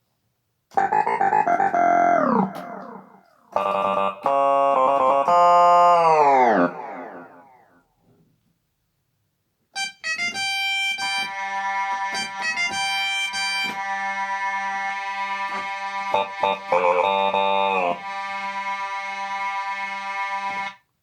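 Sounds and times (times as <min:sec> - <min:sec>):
bright sustained keyboard voice: 0:00.8 - 0:07.6, 0:09.8 - 0:20.8
keyboard note sliding down: 0:10.2 - 0:20.8.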